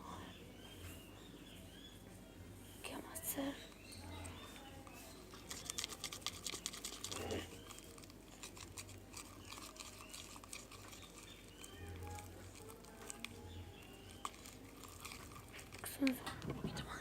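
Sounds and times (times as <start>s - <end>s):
slime squelching: 4.3s - 16.8s.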